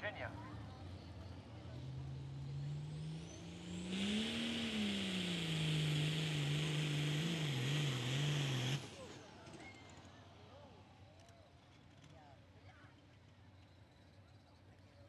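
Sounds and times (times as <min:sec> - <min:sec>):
tractor engine under load: 0:03.3 - 0:10.1
loud turbo hiss: 0:03.5 - 0:08.8.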